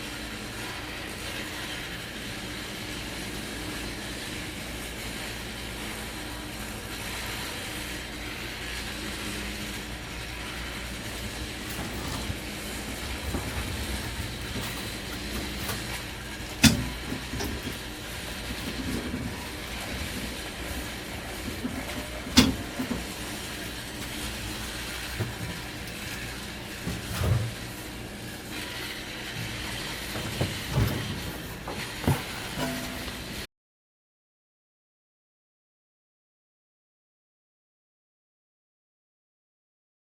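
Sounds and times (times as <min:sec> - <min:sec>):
diesel engine running: 0:08.1 - 0:33.4.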